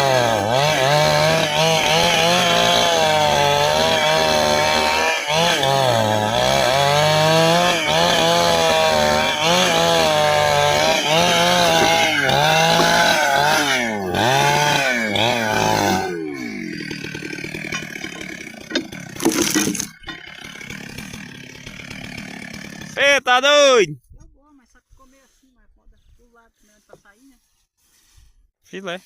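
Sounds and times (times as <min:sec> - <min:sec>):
chainsaw cutting log: 0:00.0 - 0:23.0.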